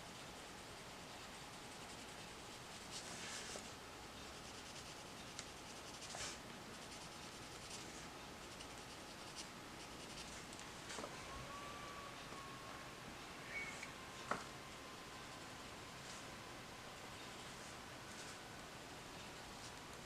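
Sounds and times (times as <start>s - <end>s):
pencil scratching on paper: 1.2s - 3.7s, 4.3s - 10.4s.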